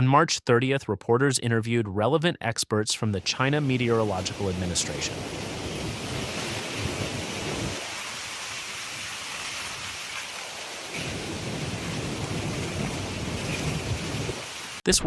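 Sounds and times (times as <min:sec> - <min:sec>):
heavy rain pouring: 0:03.4 - 0:14.9.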